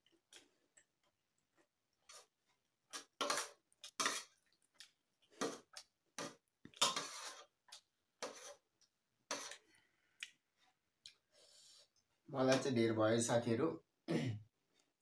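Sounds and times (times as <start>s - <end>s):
utensil clinking and scraping dish: 3.2s - 4.3s, 6.8s - 7.5s.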